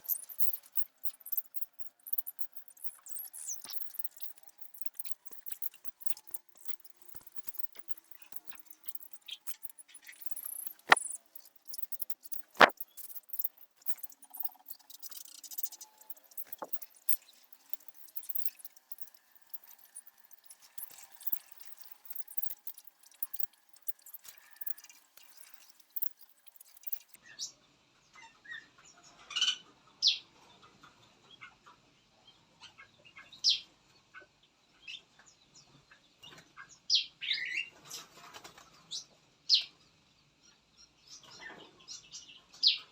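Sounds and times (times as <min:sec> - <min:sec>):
sharp clicks: 0:00.0 - 0:27.2
small birds chirping: 0:00.0 - 0:27.5, 0:34.5 - 0:42.9.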